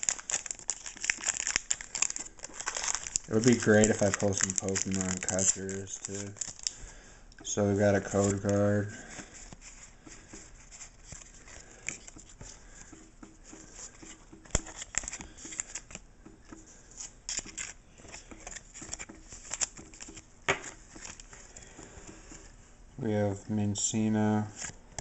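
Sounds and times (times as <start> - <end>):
trading cards sliding: 7.9 - 22.6.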